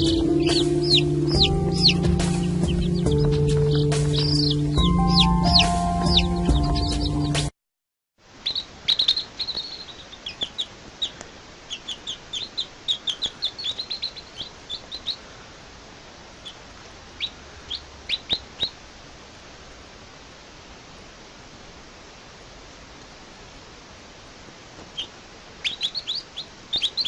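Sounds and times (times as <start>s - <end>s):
baby birds cheeping: 0.0s - 7.5s, 8.4s - 15.4s, 16.4s - 16.6s, 17.2s - 18.8s, 24.9s - 27.0s
steady hiss: 8.2s - 27.0s.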